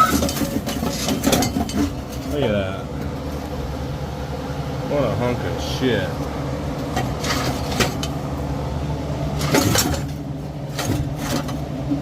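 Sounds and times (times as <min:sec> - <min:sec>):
metal clinks and knocks: 0:00.0 - 0:02.3
steady low hum: 0:00.0 - 0:12.0.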